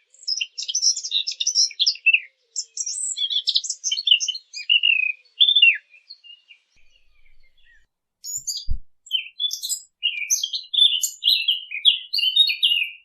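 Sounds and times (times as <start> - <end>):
small birds chirping: 0.0 - 13.0
brief low thump: 6.8 - 7.8, 8.5 - 9.0.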